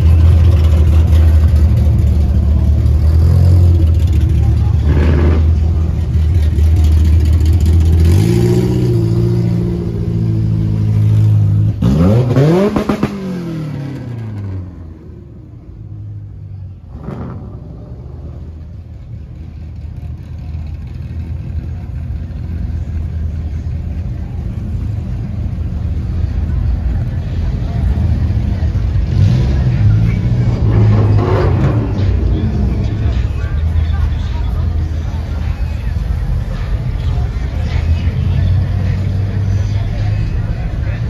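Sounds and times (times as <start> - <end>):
deep engine revving: 0.0 - 5.9, 6.9 - 14.7, 16.9 - 18.4, 28.6 - 34.0
car engines rumbling past: 0.0 - 41.0
traffic rumble: 0.0 - 41.0.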